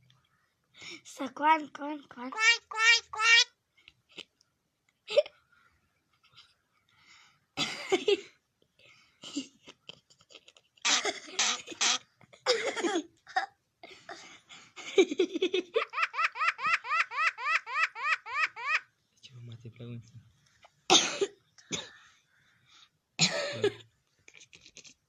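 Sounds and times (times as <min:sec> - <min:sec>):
bird mimicking laughter: 0:02.4 - 0:03.5, 0:15.9 - 0:18.9.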